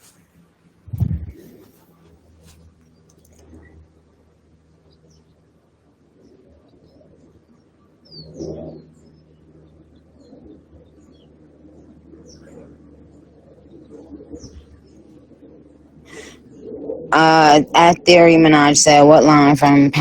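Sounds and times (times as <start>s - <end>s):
loud low sound: 0.9s - 1.4s.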